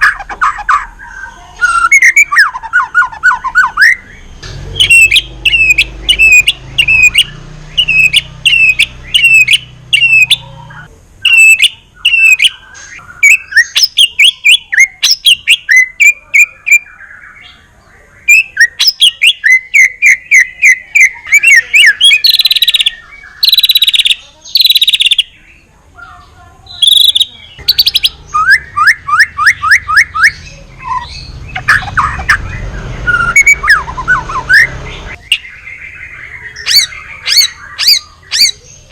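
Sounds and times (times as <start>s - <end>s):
songbird singing varied song: 0.0s - 38.9s.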